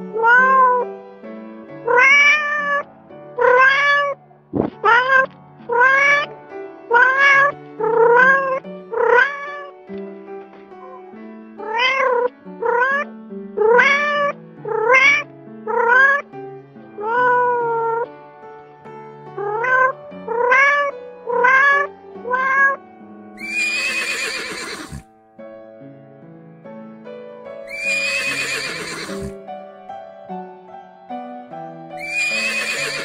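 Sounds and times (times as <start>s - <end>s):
soft background music: 0.0s - 33.0s
cat meowing: 0.1s - 0.8s, 1.9s - 6.3s, 6.9s - 9.7s, 10.7s - 16.2s, 17.0s - 18.1s, 19.4s - 22.8s, 23.4s - 25.0s, 27.7s - 29.4s, 32.0s - 33.0s.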